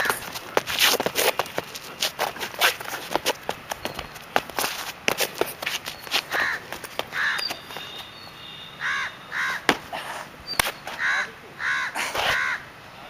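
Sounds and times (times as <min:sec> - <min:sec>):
sneakers tapping on stone: 0:00.0 - 0:08.1, 0:09.6 - 0:11.0
bird calling: 0:05.9 - 0:12.6.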